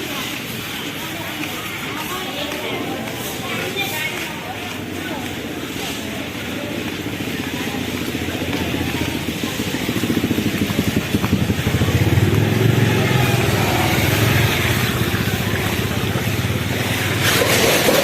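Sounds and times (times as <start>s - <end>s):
engine running with fast pulse: 6.2s - 18.0s.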